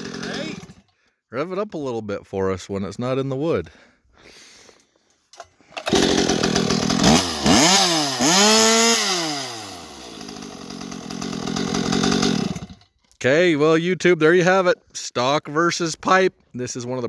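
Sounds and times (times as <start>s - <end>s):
chainsaw engine revving: 0.0s - 0.8s, 5.8s - 12.8s.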